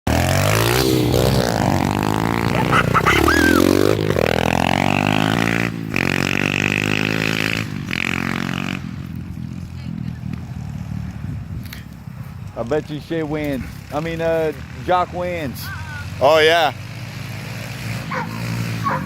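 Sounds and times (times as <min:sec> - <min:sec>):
dirt bike engines revving: 0:00.1 - 0:19.0.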